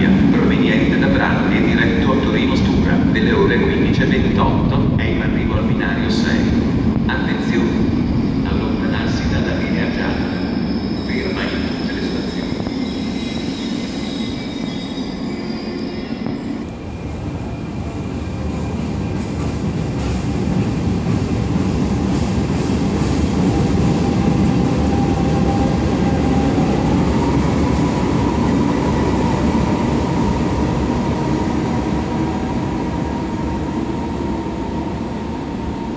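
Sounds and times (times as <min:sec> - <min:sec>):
train rumble: 0:00.0 - 0:35.9
wheel squeal: 0:12.7 - 0:16.6.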